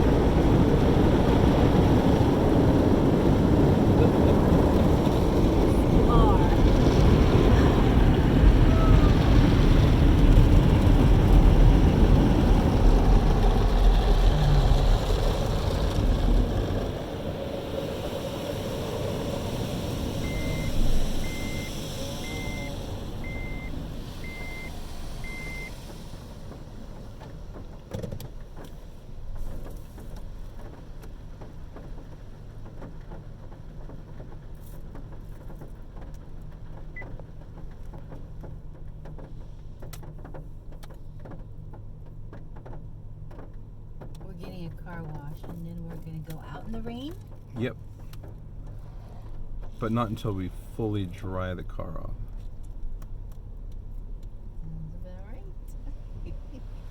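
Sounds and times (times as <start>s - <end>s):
car wash spray rushing: 0.0s - 36.0s, 43.7s - 56.9s
high beeps: 20.2s - 25.7s.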